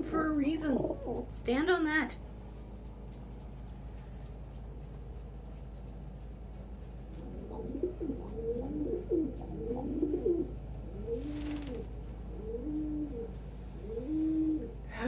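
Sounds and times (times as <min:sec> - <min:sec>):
pigeons cooing: 0:00.0 - 0:01.4, 0:07.2 - 0:14.8.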